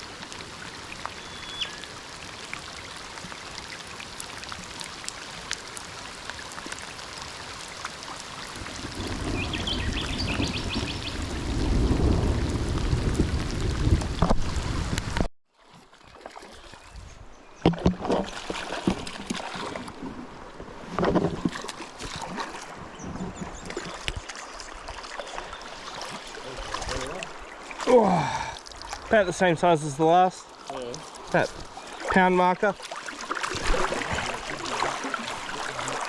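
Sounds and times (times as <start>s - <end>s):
running water: 0.0s - 17.0s, 17.6s - 36.0s
rushing river water: 0.0s - 36.0s
wind buffeting microphone: 8.5s - 15.3s.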